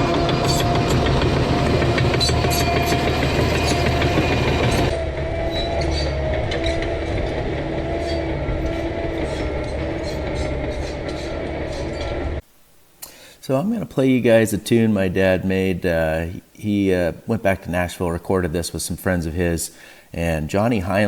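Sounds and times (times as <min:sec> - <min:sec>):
diesel engine under load: 0:00.0 - 0:12.4
steel tracks clanking and squealing: 0:00.0 - 0:12.4
steady whine: 0:00.0 - 0:13.9.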